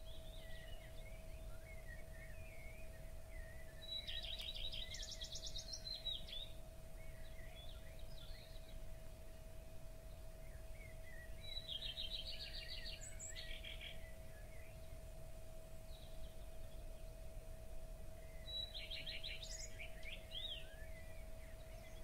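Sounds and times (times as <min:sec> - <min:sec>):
soft bird chirps: 0:00.0 - 0:09.4, 0:10.1 - 0:15.1, 0:18.2 - 0:22.0
faint steady hum: 0:00.0 - 0:22.0.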